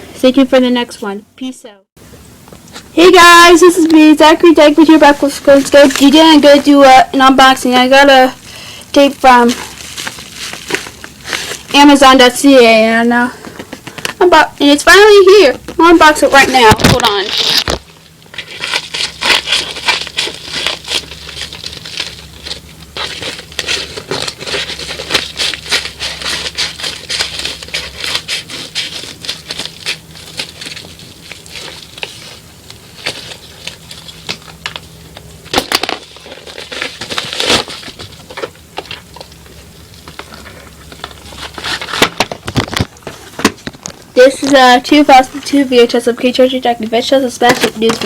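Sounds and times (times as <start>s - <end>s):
packaging crinkling and rustling: 2.7s - 6.8s, 9.0s - 12.0s, 15.6s - 45.6s, 47.4s - 48.0s.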